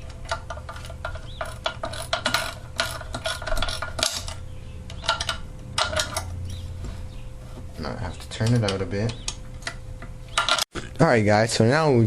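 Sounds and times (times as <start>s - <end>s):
metal parts clinking: 0.0s - 6.4s, 10.4s - 10.6s.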